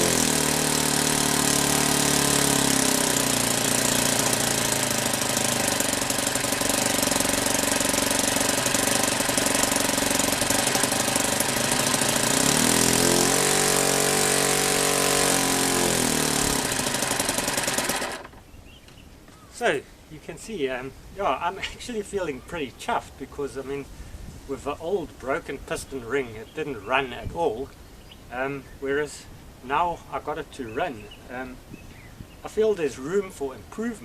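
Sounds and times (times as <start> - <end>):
model aircraft engine running: 0.0 - 18.4.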